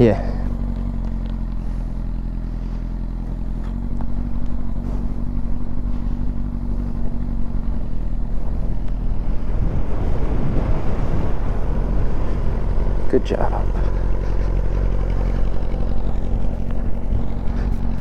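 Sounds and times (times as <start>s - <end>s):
motorcycle engine idling: 0.0s - 18.0s
wind rumble on microphone: 3.5s - 18.0s.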